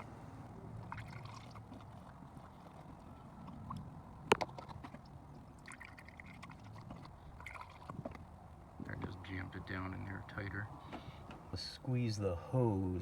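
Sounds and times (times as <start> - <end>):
quiet handling noises: 8.0 - 9.6, 10.7 - 11.7.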